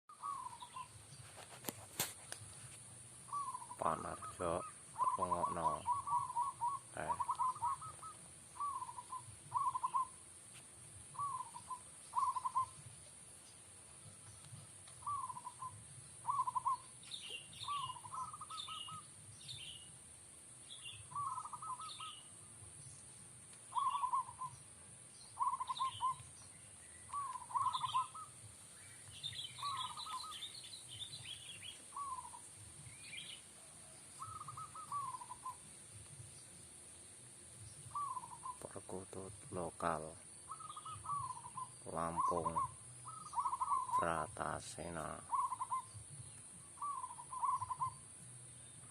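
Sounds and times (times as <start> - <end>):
dove cooing: 0.1 - 0.9, 3.3 - 10.2, 11.1 - 12.9, 14.9 - 19.8, 21.0 - 22.3, 23.7 - 24.6, 25.3 - 26.4, 27.1 - 28.4, 29.2 - 35.7, 37.9 - 48.0
small birds chirping: 0.1 - 48.9.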